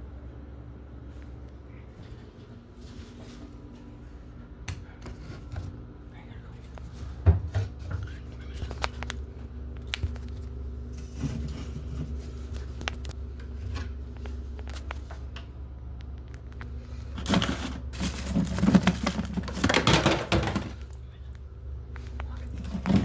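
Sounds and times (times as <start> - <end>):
low hum: 0.0 - 23.0
rustling and scraping: 9.8 - 15.4, 16.4 - 21.0, 22.0 - 23.0.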